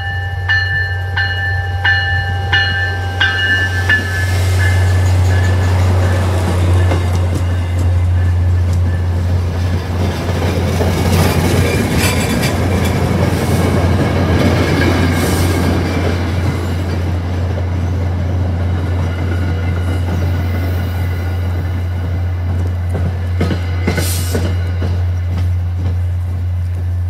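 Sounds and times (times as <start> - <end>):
train coaches rumbling past: 0.0 - 27.0
wheels clicking over rail joints: 0.2 - 20.4.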